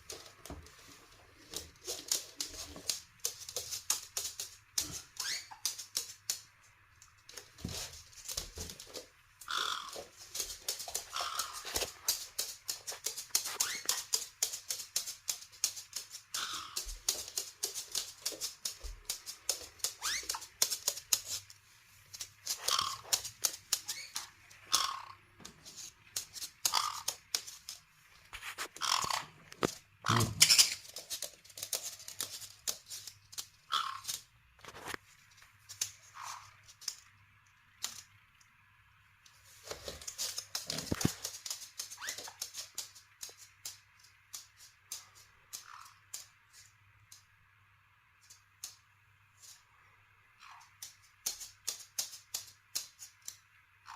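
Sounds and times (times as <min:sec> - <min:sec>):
parrots pecking clicks and taps: 0:01.4 - 0:21.5, 0:22.1 - 0:27.8, 0:50.5 - 0:53.5
parrot squeaky call: 0:05.2 - 0:05.6, 0:13.6 - 0:14.0, 0:20.0 - 0:20.4.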